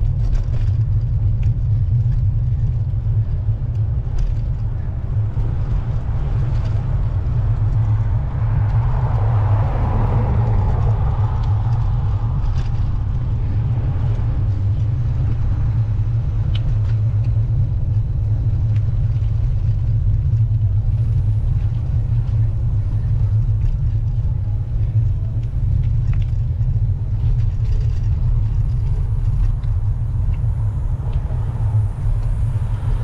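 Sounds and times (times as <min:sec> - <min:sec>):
car road noise: 0:00.0 - 0:33.0
wind rumble on microphone: 0:00.0 - 0:33.0.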